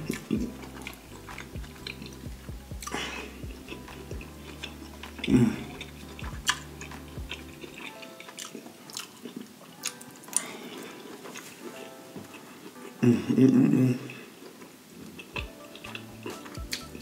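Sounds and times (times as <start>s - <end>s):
close chewing with mouth clicks: 0.0s - 11.6s
soft background music: 0.0s - 17.0s.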